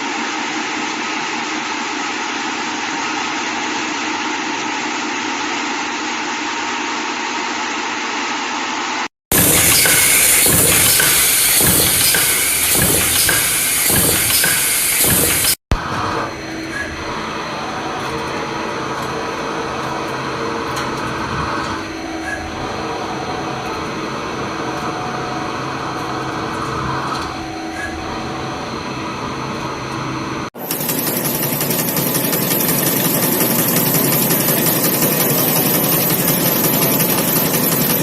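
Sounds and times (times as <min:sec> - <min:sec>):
hissing machine with high whine: 0:09.3 - 0:20.5
industrial machinery running: 0:09.3 - 0:38.0.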